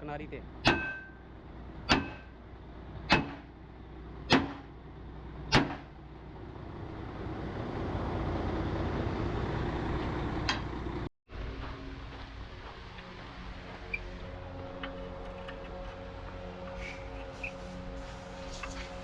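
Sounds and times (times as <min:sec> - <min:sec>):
steady mechanical noise: 0:10.2 - 0:19.0.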